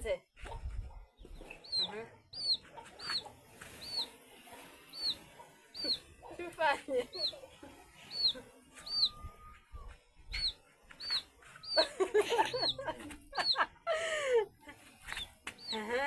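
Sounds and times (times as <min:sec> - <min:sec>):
chickens: 0:00.4 - 0:13.7
bird chirping: 0:00.5 - 0:13.7, 0:14.9 - 0:16.0
lower louder calls: 0:01.3 - 0:06.2, 0:07.2 - 0:13.7.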